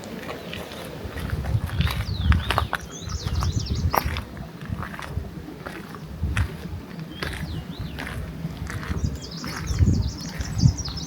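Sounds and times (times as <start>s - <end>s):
footsteps on a trail: 0.0s - 11.0s
small bird chirping: 1.7s - 4.1s, 8.8s - 11.0s.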